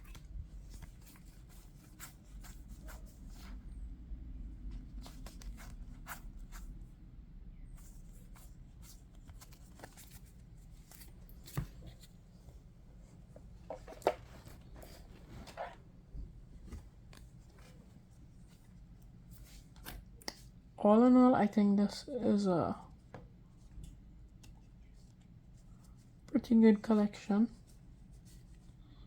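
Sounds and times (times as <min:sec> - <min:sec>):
low room hum: 0:00.0 - 0:29.0
cards rustling: 0:07.8 - 0:12.2
light clicks of card on card: 0:19.8 - 0:20.5.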